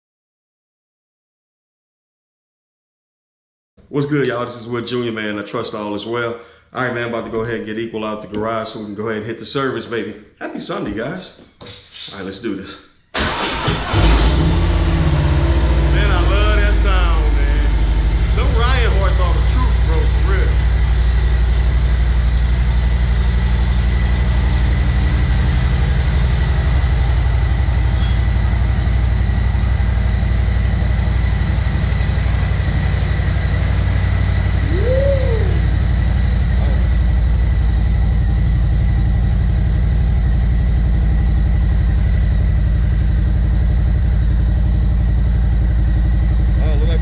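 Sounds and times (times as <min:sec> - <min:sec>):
motorcycle engine idling: 0:16.0 - 0:47.0.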